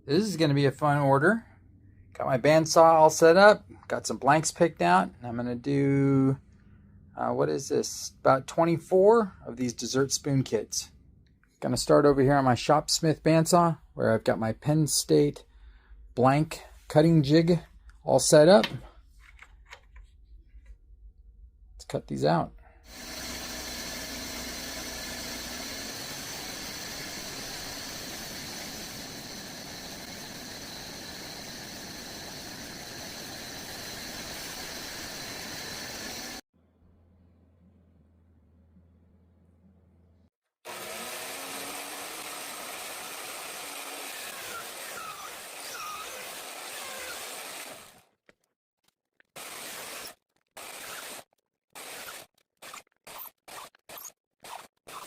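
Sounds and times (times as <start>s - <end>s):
bandsaw whirring: 22.9s - 36.4s, 40.7s - 48.1s, 49.4s - 55.0s.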